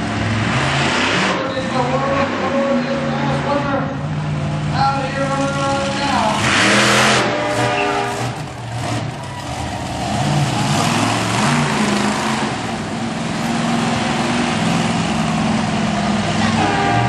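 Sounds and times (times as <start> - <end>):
truck engine revving: 0.0 - 17.0
loud rushing noise: 5.6 - 17.0.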